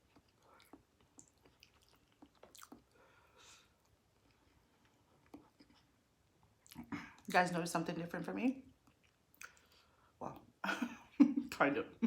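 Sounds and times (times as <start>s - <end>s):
wet chewing: 0.0s - 7.3s.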